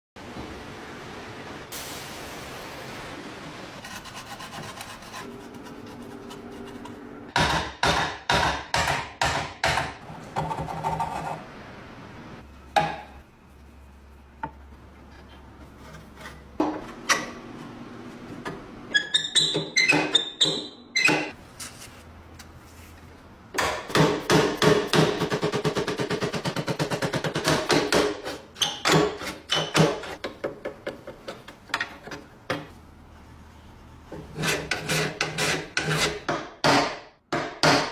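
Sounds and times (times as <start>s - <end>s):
tool scraping metal: 34.1s - 36.3s.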